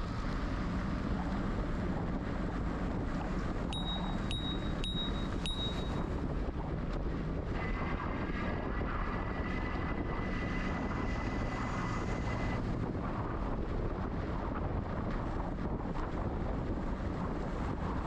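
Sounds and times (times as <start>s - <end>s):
wind noise on microphone: 0.0s - 18.0s
thin high whine: 3.8s - 6.1s.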